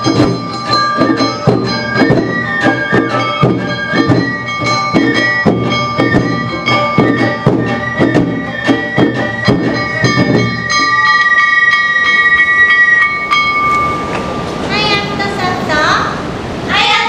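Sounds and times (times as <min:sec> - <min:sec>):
bamboo flute melody: 0:00.0 - 0:14.4
drums beating: 0:00.0 - 0:16.9.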